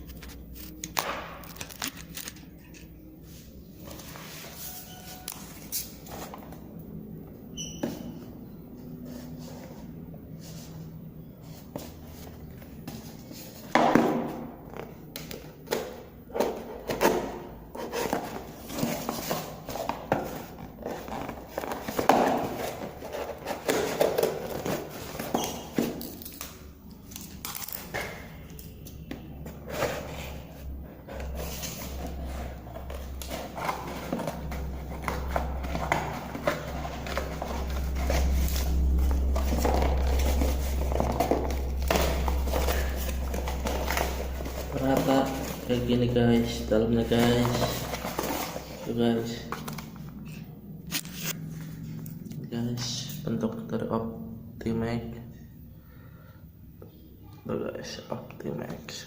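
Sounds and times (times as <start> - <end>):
packaging rustling and crinkling: 16.4 - 28.4, 29.6 - 51.4
low rumble: 30.5 - 46.8.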